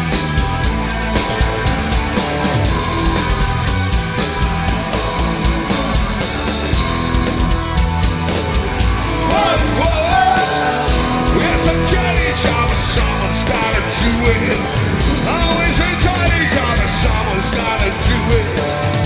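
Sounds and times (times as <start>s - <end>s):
rock band playing live: 0.0s - 19.0s
person singing: 9.0s - 19.0s.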